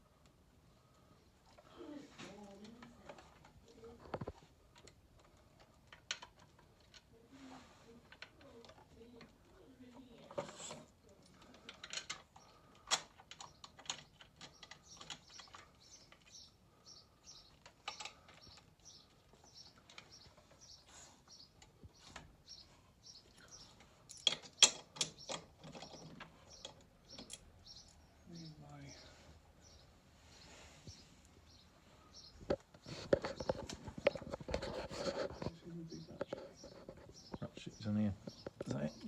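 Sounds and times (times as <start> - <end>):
metal parts and hand tools knocking: 24.1 - 27.4.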